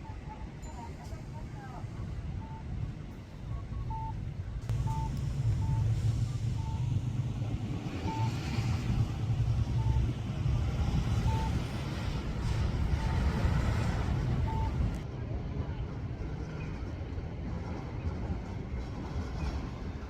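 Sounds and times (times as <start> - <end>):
vehicle engine rumble: 0.0 - 20.0
short electronic beeps: 3.4 - 7.0, 8.0 - 10.3, 11.1 - 11.7, 14.4 - 14.9.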